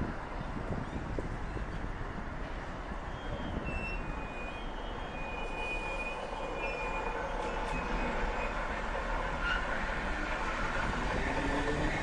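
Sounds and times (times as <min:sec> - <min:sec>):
electric train approaching: 0:01.5 - 0:12.0
faint high squeals: 0:03.1 - 0:09.8.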